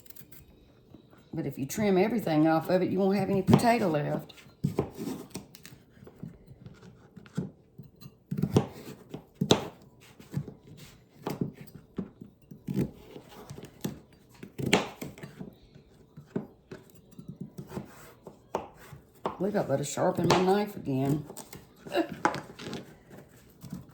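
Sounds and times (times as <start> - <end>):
knife cutting on cutting board: 3.4 - 7.6, 8.3 - 11.8, 12.6 - 15.5, 17.6 - 19.4.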